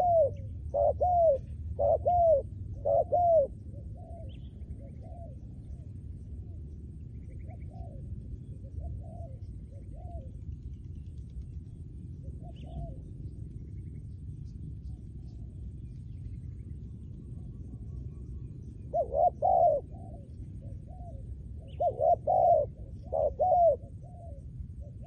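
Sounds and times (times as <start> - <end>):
dove cooing: 0.0 - 5.9, 7.3 - 10.4, 12.2 - 13.1, 18.9 - 25.0
low background rumble: 0.0 - 25.0.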